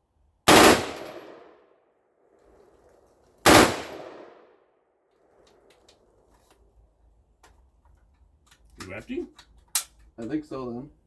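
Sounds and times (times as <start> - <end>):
rifle shots with echo: 0.5 - 1.6, 3.4 - 4.5.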